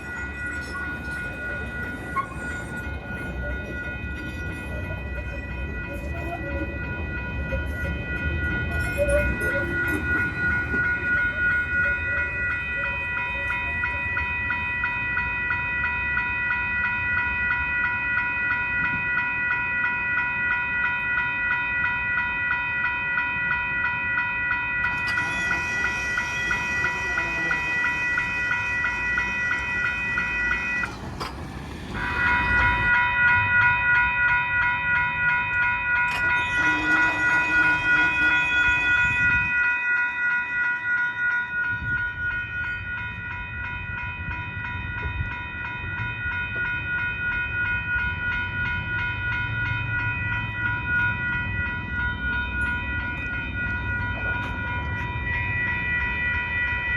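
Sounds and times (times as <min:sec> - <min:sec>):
crossing warning bells ringing: 0:00.0 - 0:56.9
train passing with hiss: 0:24.8 - 0:33.0.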